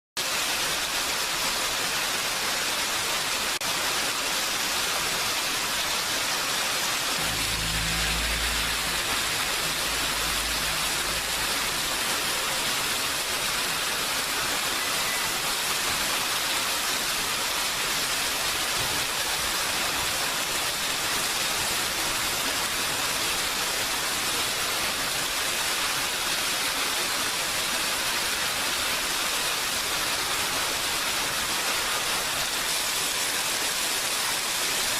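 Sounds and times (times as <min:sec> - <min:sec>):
heavy rain falling: 0:00.2 - 0:34.9
low rumble: 0:07.2 - 0:13.5.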